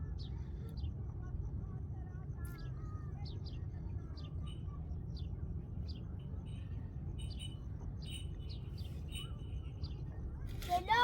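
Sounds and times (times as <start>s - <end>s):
small birds chirping: 2.5s - 11.0s.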